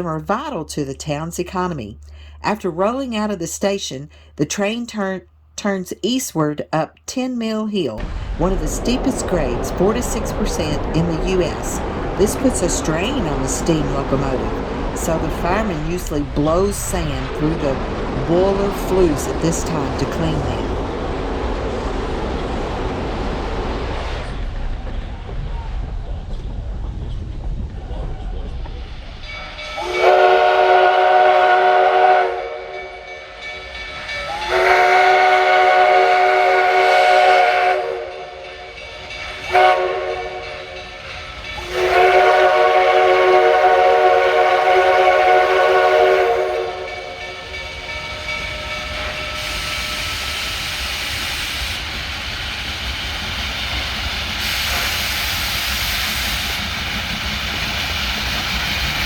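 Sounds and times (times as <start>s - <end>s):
steam locomotive whistle blasts: 29.5s - 51.9s, 54.4s - 56.7s
steam hissing: 38.6s - 59.0s.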